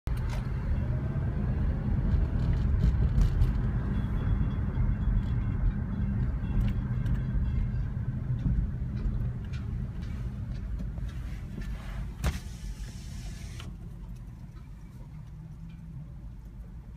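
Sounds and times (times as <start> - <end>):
train low rumble: 0.4 - 12.8.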